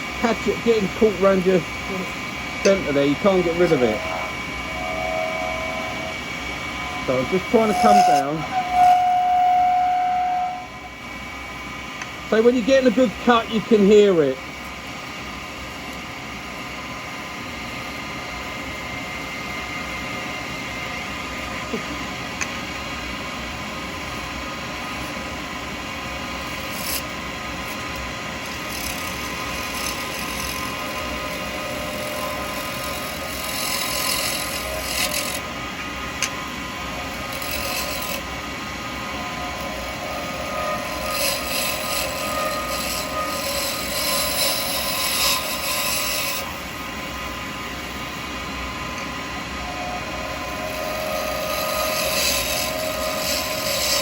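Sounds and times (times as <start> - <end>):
lathe running: 0.0 - 54.0
cutter scraping acrylic: 0.4 - 10.7, 26.4 - 35.5, 37.0 - 38.4, 39.0 - 46.8, 50.0 - 54.0.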